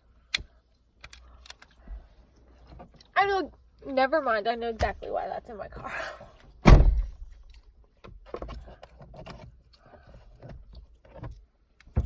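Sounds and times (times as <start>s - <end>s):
knocks clicks and rustles of handling: 6.4s - 12.0s
loud thump: 6.6s - 7.3s.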